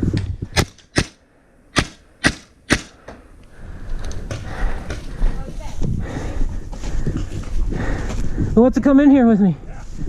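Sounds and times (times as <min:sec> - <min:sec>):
paintball marker shots: 0:00.5 - 0:03.0.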